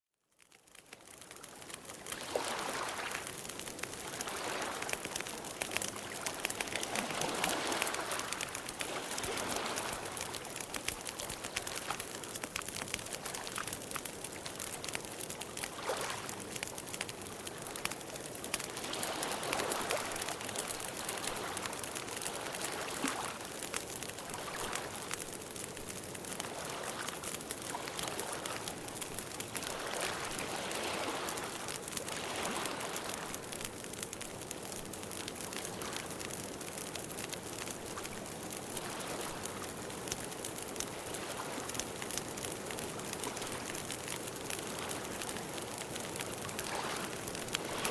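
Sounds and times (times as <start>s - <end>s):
campfire crackling and popping: 0.2s - 47.9s.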